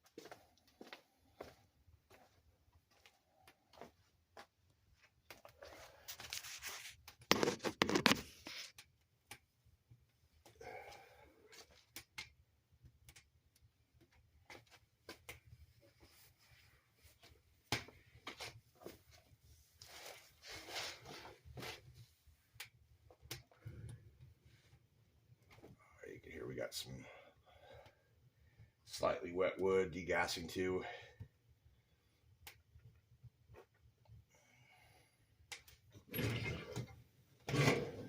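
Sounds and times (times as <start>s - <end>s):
paper rustling and tearing: 6.1s - 8.8s.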